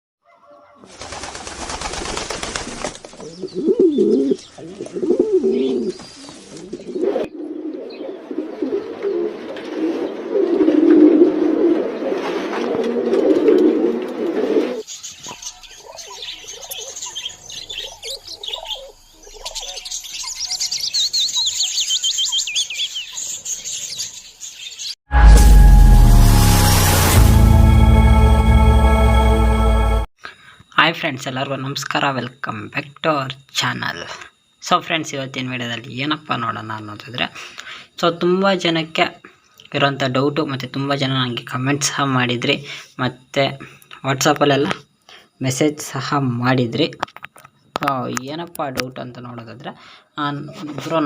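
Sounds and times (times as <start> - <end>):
doves cooing: 0.3 - 19.9
small birds chirping and twittering: 3.1 - 4.8, 14.8 - 25.0.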